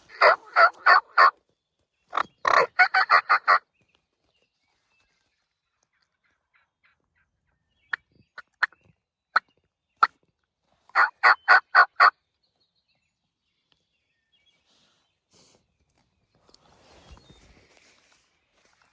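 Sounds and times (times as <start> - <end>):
turkey call yelps: 0.0 - 1.3, 2.2 - 3.6, 11.0 - 12.1
turkey call clucks: 0.0 - 1.4, 2.1 - 3.6, 10.9 - 12.1.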